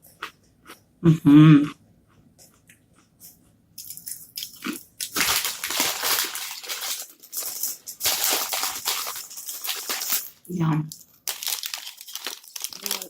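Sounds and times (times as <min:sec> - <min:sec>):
crunching and chewing crispy snack: 0:02.5 - 0:07.2, 0:11.1 - 0:13.0.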